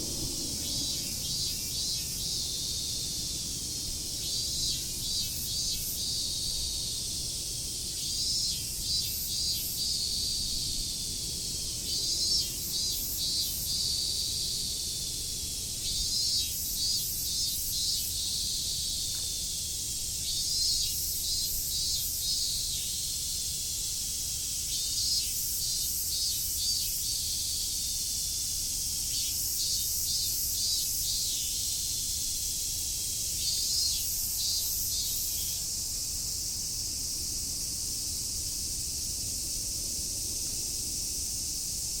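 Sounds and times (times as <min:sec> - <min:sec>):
cicada calling: 0:00.0 - 0:42.0
steady high hiss: 0:00.0 - 0:42.0.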